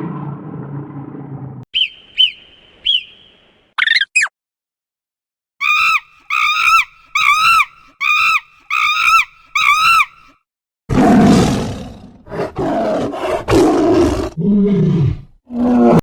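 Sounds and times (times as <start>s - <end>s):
high-pitched wavering animal cries: 5.6s - 10.3s
rough roar-like animal call: 10.9s - 16.0s.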